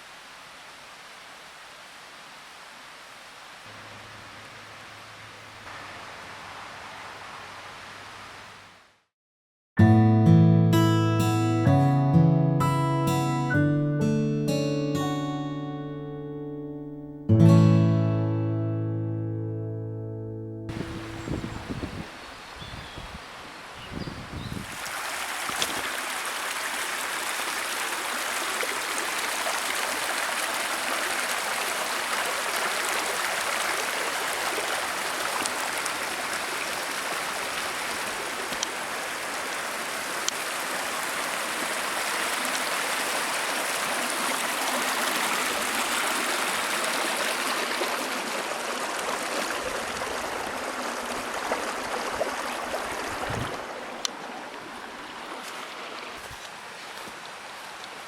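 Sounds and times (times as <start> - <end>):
stream water rushing: 0.0 - 8.9, 20.7 - 58.0.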